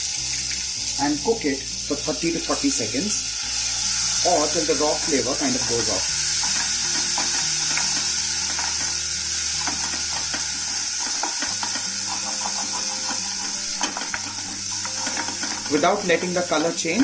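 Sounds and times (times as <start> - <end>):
paste sizzling in butter: 0.0 - 17.0
wooden spatula scraping a pot: 9.6 - 17.0.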